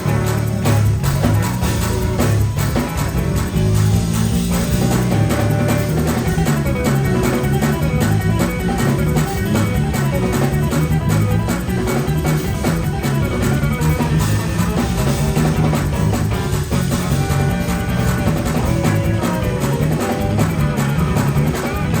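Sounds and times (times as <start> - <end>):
bass guitar: 0.0 - 22.0
fast drum beat: 0.0 - 22.0
guitar: 0.0 - 22.0.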